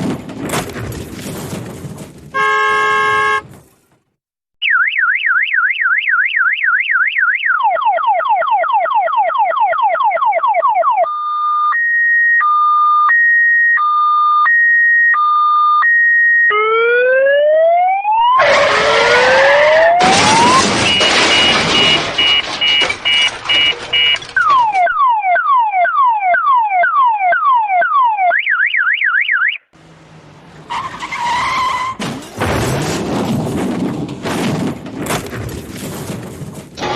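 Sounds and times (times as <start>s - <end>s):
toy electronic siren effects: 4.6s - 22.3s, 24.0s - 29.6s.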